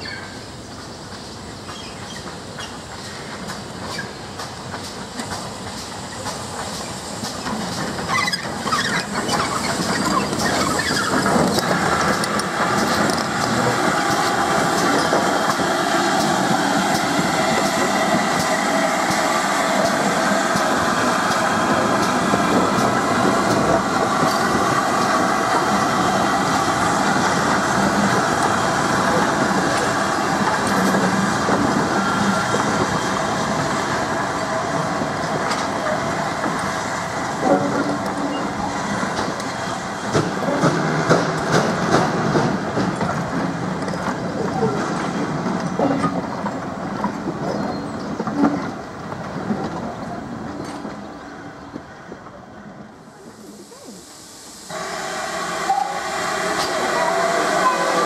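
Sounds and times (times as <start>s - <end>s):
train wheels rumbling on rail: 0.0s - 58.0s
wheels clicking over rail joints: 1.1s - 24.7s.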